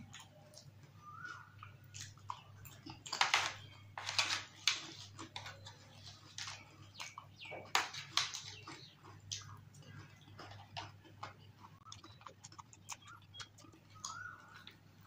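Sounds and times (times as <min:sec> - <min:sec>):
crunchy chewing: 0:00.0 - 0:15.0
wet mouth sounds: 0:10.4 - 0:14.4.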